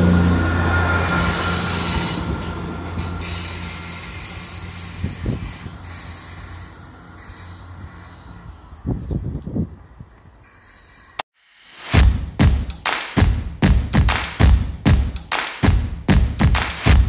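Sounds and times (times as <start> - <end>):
train engine hum: 0.0 - 11.2
wheel squeal: 0.0 - 11.2.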